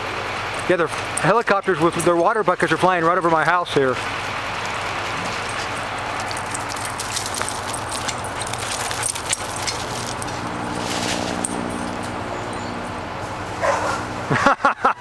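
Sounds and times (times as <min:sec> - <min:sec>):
helicopter rotor noise: 0:00.0 - 0:14.5
helicopter engine hum: 0:04.0 - 0:14.4.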